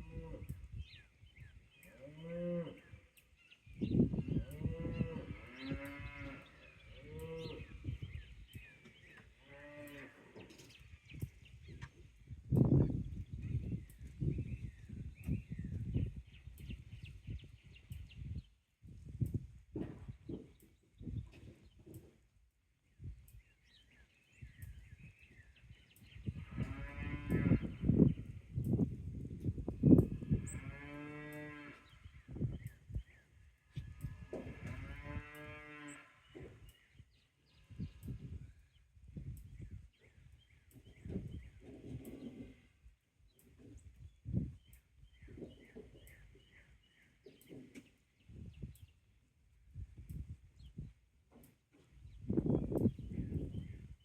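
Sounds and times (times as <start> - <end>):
cattle mooing: 4.5 - 7.8, 34.4 - 36.1.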